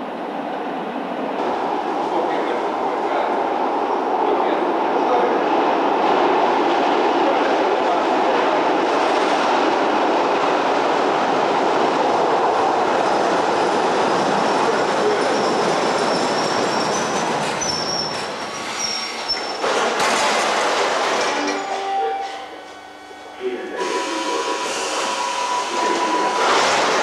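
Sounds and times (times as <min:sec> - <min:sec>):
rail vehicle rumbling on track: 0:00.0 - 0:27.0
high wheel squeal: 0:15.2 - 0:19.6, 0:21.4 - 0:27.0.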